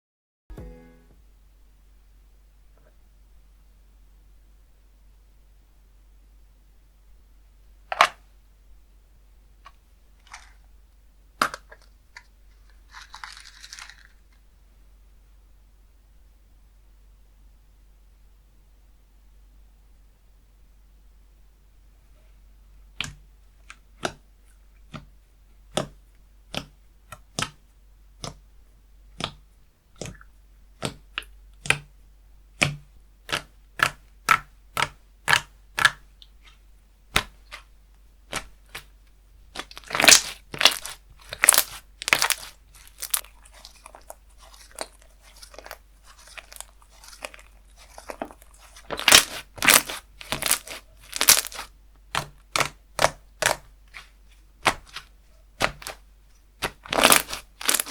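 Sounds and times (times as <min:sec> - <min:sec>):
slime clicking and popping: 0:25.7 - 0:27.6, 0:29.2 - 0:31.9, 0:32.6 - 0:37.7, 0:39.5 - 0:56.0, 0:56.6 - 0:57.9.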